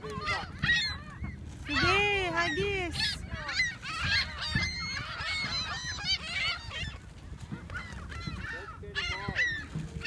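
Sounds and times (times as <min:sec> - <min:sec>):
seagulls squawking: 0:00.0 - 0:10.0.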